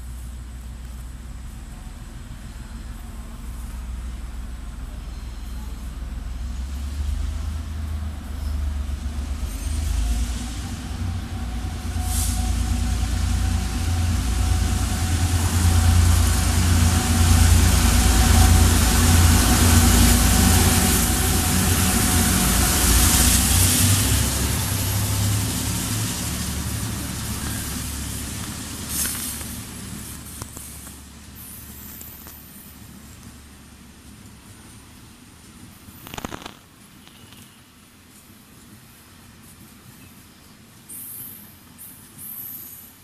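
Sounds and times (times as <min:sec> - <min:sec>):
diesel locomotive engine rumble: 0:00.0 - 0:43.0
wagons rolling on rails: 0:15.2 - 0:33.4.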